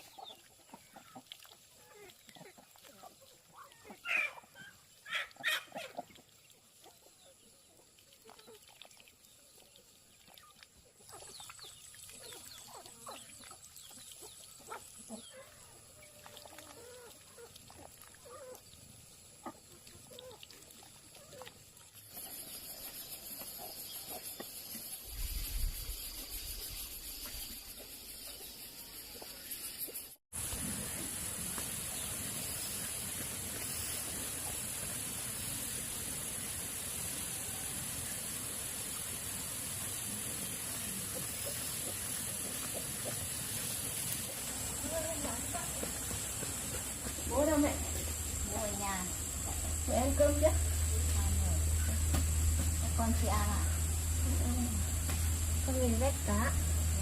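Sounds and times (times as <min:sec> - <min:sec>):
outdoor background noise: 0:00.0 - 0:57.0
farm animals calling: 0:01.9 - 0:06.1.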